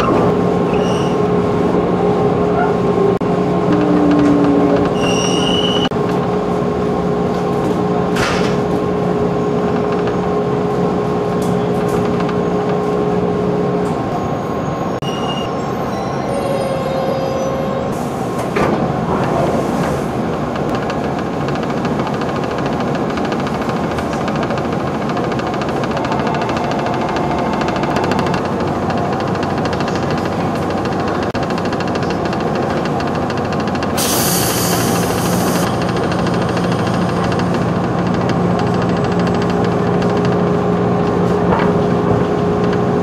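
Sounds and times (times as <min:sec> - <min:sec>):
train rolling noise: 0:00.0 - 0:43.0
high-pitched brake squeals: 0:00.7 - 0:01.2, 0:04.6 - 0:05.9, 0:14.1 - 0:18.1.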